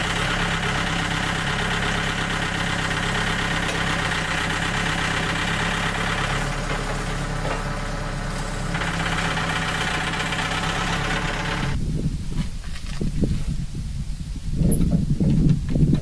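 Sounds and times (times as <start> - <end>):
small gasoline engine running: 0.0 - 11.8.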